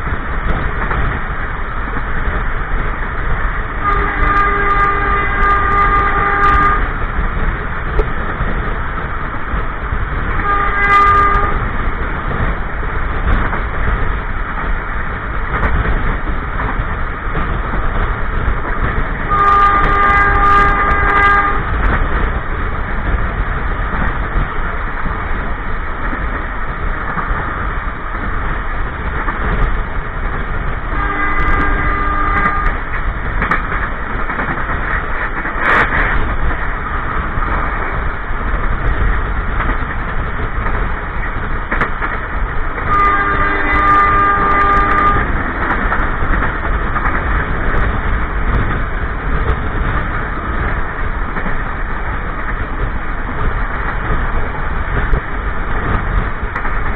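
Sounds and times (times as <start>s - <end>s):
train wheel and track rumble: 0.0s - 56.9s
train horn blasts: 3.8s - 7.0s, 10.4s - 11.7s, 19.3s - 21.8s, 30.9s - 32.8s, 42.8s - 45.4s.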